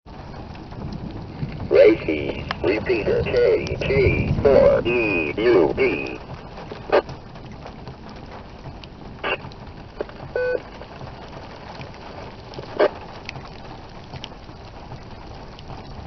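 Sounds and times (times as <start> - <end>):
radio static hiss: 1.5 - 7.1, 9.2 - 9.4, 10.0 - 11.0, 12.0 - 13.2
electronic beep: 10.4 - 10.6.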